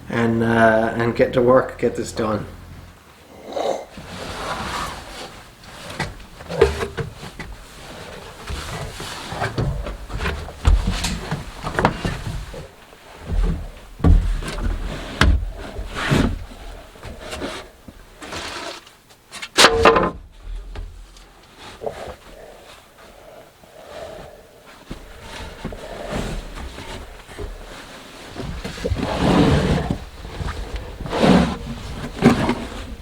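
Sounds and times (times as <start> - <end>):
rustling: 3.8 - 33.0
wooden knocks and thumps: 8.4 - 18.0.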